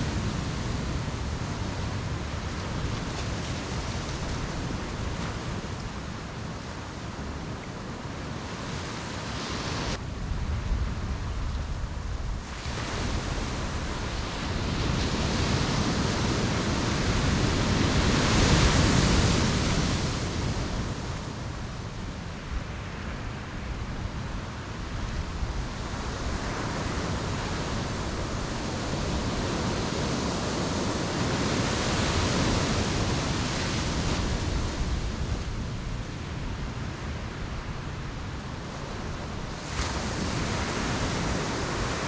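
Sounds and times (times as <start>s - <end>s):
ocean surf breaking: 12.4s - 23.8s, 24.5s - 36.4s, 38.7s - 42.0s.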